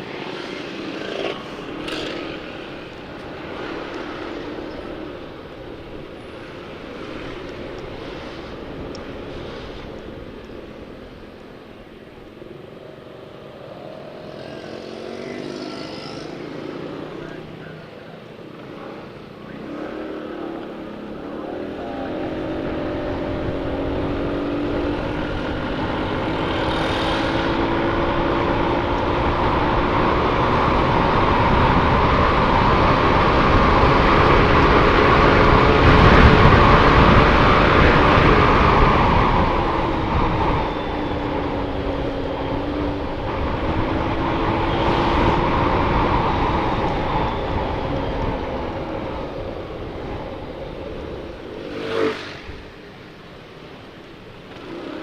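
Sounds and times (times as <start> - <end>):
motorcycle engine accelerating: 19.7 - 52.8
wind buffeting microphone: 22.2 - 51.6.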